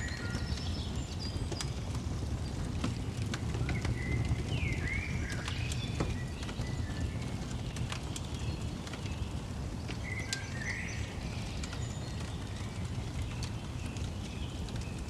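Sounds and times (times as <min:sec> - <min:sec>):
small birds chirping: 0:00.0 - 0:02.7, 0:03.5 - 0:15.0
wood fire crackling and popping: 0:00.0 - 0:15.0.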